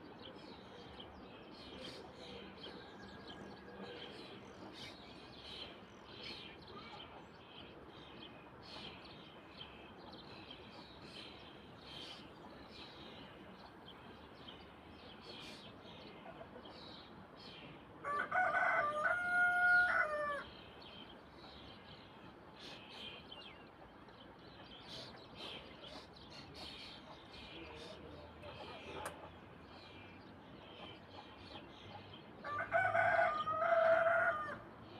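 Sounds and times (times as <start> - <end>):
rooster crowing: 18.0 - 20.5, 32.4 - 34.6.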